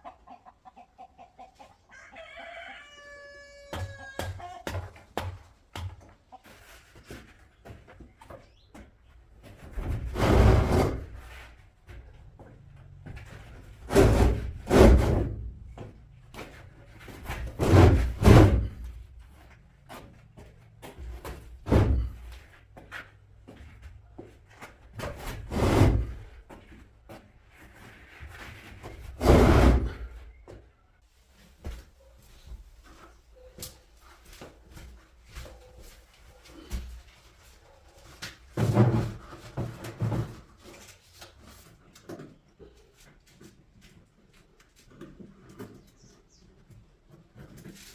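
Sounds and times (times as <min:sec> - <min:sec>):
heavy knocks and scrapes: 0:09.5 - 0:12.1, 0:13.0 - 0:19.0, 0:20.9 - 0:23.0, 0:25.0 - 0:26.7, 0:27.6 - 0:30.2, 0:38.4 - 0:40.8.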